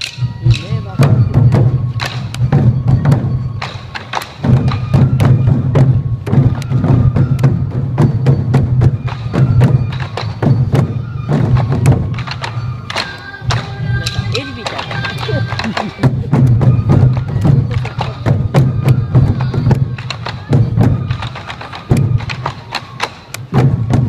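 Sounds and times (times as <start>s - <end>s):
bamboo flute: 0.0s - 24.0s
taiko drums: 0.0s - 24.0s.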